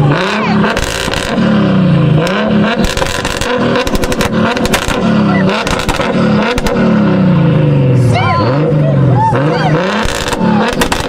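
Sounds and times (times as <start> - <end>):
turbocharged car engine revving: 0.0 - 11.0
exhaust pops and bangs: 0.7 - 1.6, 2.2 - 7.2, 9.9 - 11.0.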